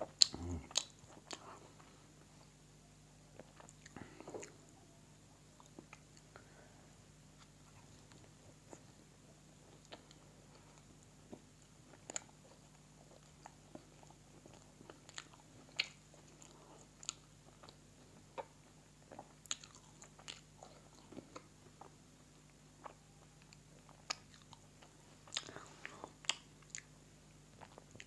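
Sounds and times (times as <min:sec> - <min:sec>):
man chewing: 0:00.0 - 0:01.9, 0:03.3 - 0:04.7, 0:09.6 - 0:21.9, 0:22.8 - 0:26.9, 0:27.5 - 0:28.0.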